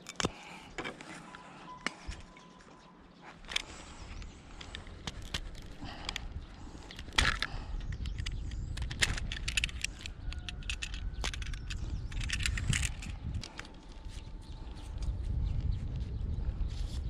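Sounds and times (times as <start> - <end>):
steady low rumble: 1.3 - 17.0
metallic clicks and rattles: 3.4 - 13.9.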